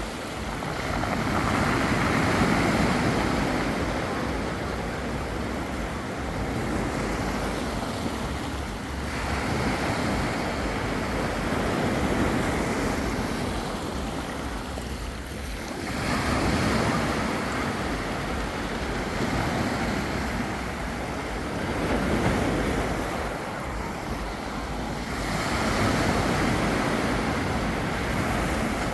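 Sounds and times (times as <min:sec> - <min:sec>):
surf washing onto beach: 0:00.0 - 0:28.9
wind rumbling on microphone: 0:00.0 - 0:28.9.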